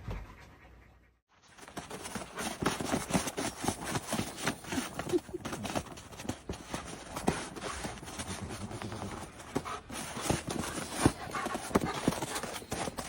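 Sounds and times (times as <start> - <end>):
knocks and scuffling taps: 1.5 - 13.0.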